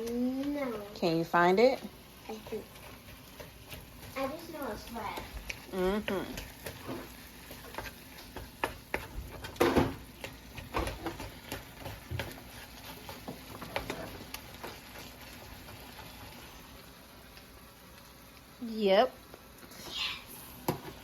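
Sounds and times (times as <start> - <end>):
kitchen clicks and knocks: 7.7 - 12.4.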